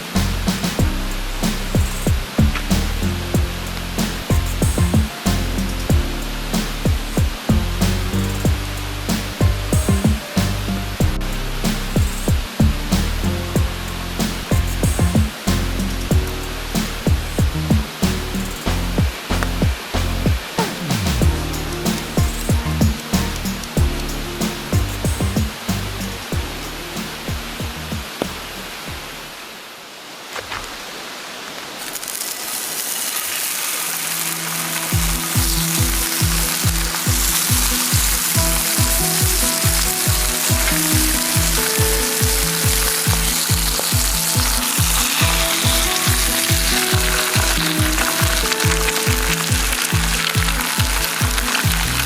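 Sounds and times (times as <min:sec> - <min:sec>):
background music with a beat: 0:00.0 - 0:29.1, 0:34.9 - 0:52.0
food frying with a sizzle: 0:34.7 - 0:52.0.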